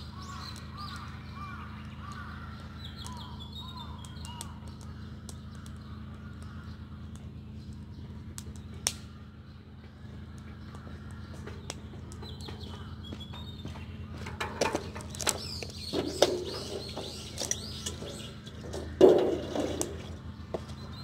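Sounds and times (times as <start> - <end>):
small birds chirping: 0.0 - 21.0
steady low hum: 0.0 - 21.0
scattered clicks and knocks: 10.3 - 20.7.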